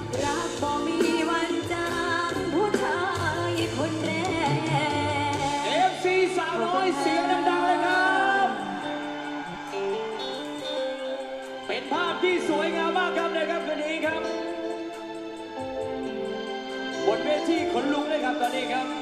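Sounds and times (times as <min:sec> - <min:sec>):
woman singing: 0:00.0 - 0:09.6
live band playing: 0:00.0 - 0:19.0.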